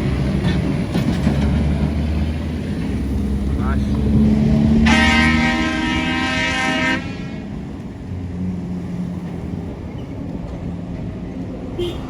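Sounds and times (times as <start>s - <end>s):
truck engines running: 0.0s - 12.0s
truck horn blast: 4.8s - 7.6s, 11.8s - 12.0s.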